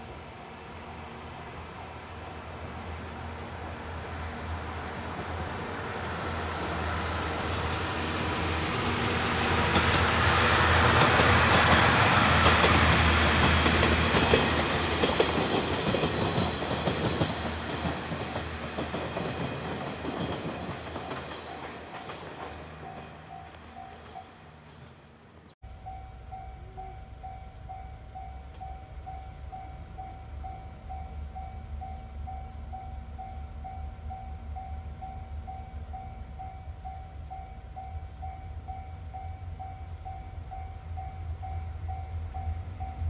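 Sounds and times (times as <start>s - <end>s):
passenger train passing: 0.0s - 43.0s
wheels clacking over rail joints: 9.5s - 25.0s.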